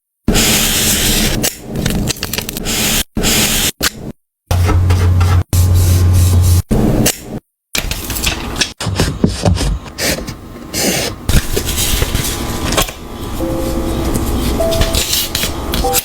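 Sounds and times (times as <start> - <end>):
paper rustling and rubbing: 5.2 - 6.6, 9.1 - 13.5.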